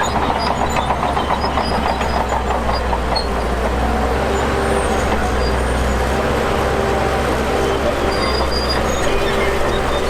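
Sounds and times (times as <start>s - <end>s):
bulldozer diesel engine running: 0.0s - 10.0s
short high squeaks: 7.9s - 10.0s.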